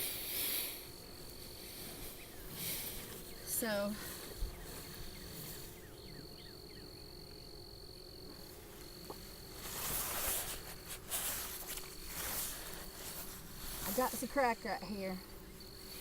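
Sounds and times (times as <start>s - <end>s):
high steady insect trill: 0.0s - 16.0s
low hum of bees: 0.0s - 16.0s
handling rustle: 8.3s - 15.1s.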